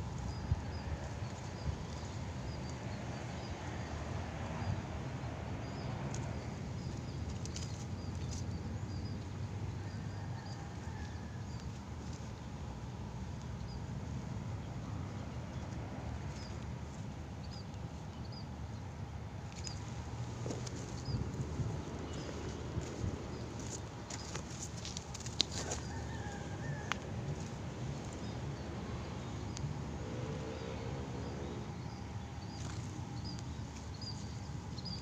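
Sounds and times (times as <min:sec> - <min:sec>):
small birds chirping: 0:13.3 - 0:35.0.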